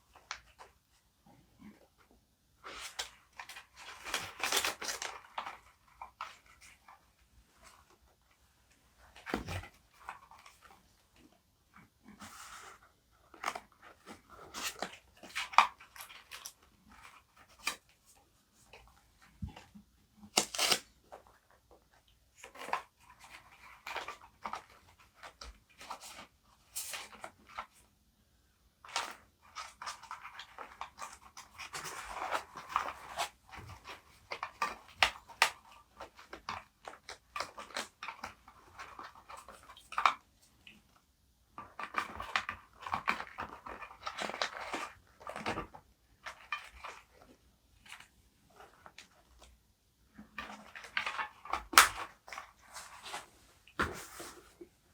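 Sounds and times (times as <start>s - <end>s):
paper rustling and crinkling: 50.2s - 54.7s.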